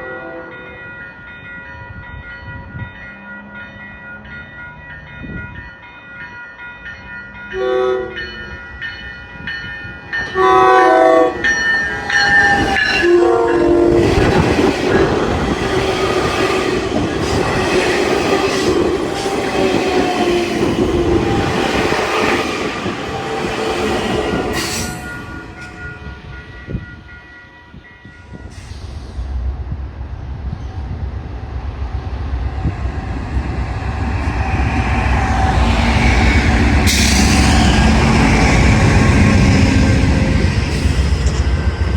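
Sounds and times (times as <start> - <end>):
train air horn blasts: 7.6 - 8.2, 10.4 - 11.5, 12.4 - 15.4, 16.4 - 25.7
train wheels clattering: 9.0 - 27.0.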